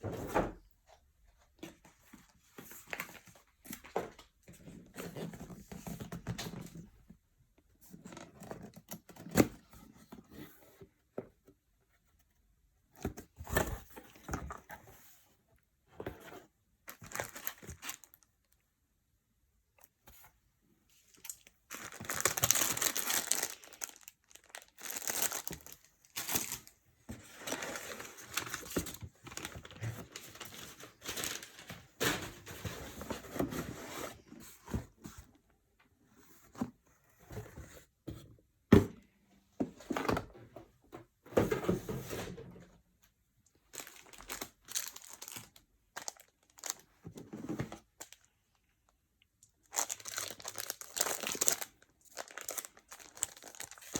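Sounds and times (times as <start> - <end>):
packaging rustling and crinkling: 16.9 - 18.3, 21.1 - 35.3, 43.7 - 48.3, 49.6 - 53.9.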